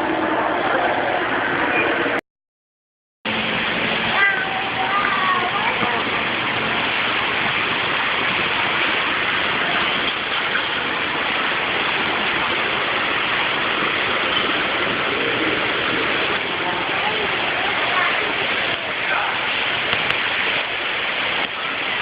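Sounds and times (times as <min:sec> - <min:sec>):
falling water rushing: 0:03.3 - 0:22.0.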